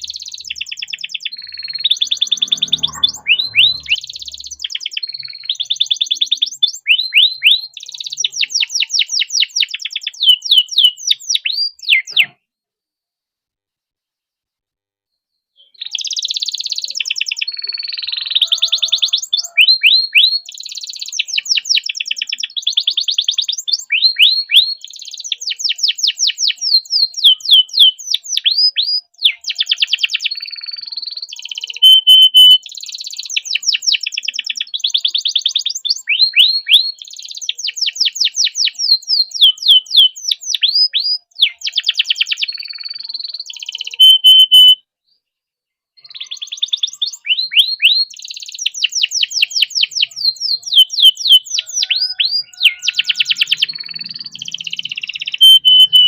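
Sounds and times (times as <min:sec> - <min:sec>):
canary singing trills: 0:00.0 - 0:12.4, 0:15.6 - 0:44.8, 0:46.0 - 0:56.0
held whistled notes: 0:01.4 - 0:04.1, 0:31.8 - 0:32.6, 0:44.0 - 0:44.8, 0:52.4 - 0:56.0.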